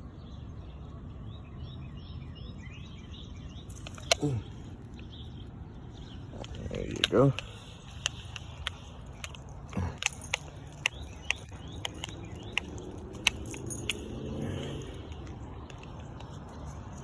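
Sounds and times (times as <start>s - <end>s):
small sharp clicks: 3.6s - 17.0s.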